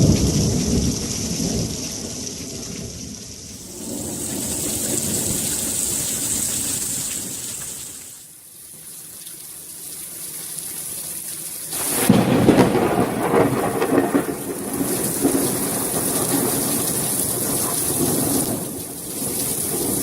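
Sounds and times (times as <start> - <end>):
thunder rumbling: 0.0 - 8.1, 11.8 - 20.0
heavy rain: 0.0 - 8.4, 11.7 - 20.0
loud thunder clap: 3.5 - 7.9, 11.8 - 20.0.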